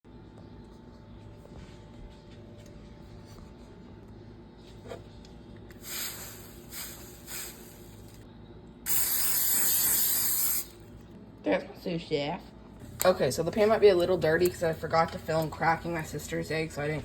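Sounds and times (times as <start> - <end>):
low steady hum: 0.1 - 8.9, 10.6 - 17.0
short bursts of hiss: 5.8 - 8.1, 8.9 - 10.7.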